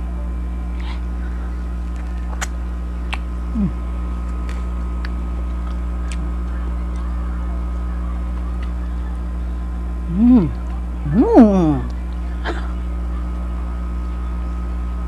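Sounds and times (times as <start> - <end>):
low hum: 0.0 - 15.0
person chewing fruit: 1.8 - 6.3
mouth clicks and smacks: 1.9 - 3.3.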